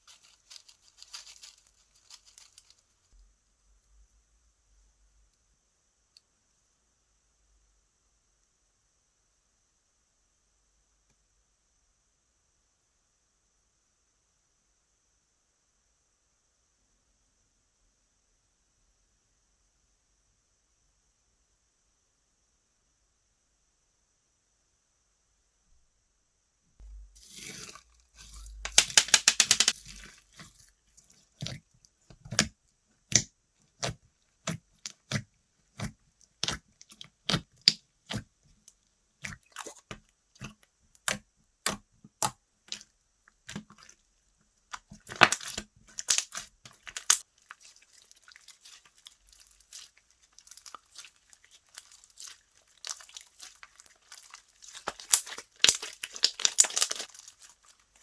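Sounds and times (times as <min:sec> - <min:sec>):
slime clicking and popping: 0:28.3 - 0:30.0, 0:44.7 - 0:47.2, 0:48.6 - 0:57.8.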